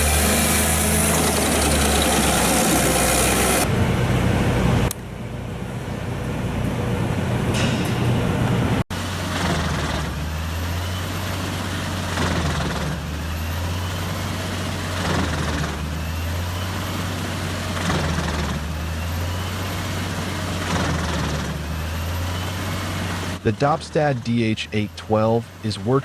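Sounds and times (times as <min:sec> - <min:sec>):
wood chipper engine running: 0:00.0 - 0:07.3, 0:08.9 - 0:26.0
rush of material through chipper: 0:08.9 - 0:23.4.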